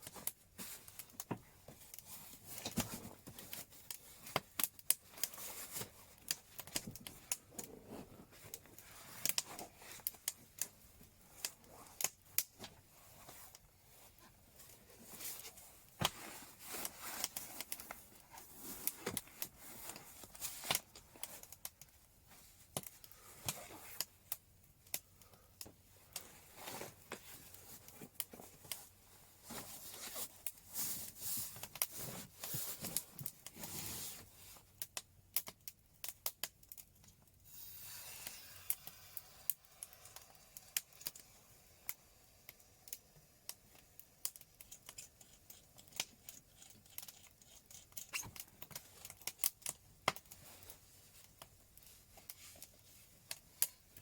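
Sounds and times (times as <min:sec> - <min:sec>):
fire popping and snapping: 0:00.0 - 0:14.0, 0:14.6 - 0:29.1, 0:29.7 - 0:37.4, 0:38.8 - 0:54.0
wood fire crackling: 0:00.0 - 0:54.0
fire hissing: 0:37.5 - 0:43.0.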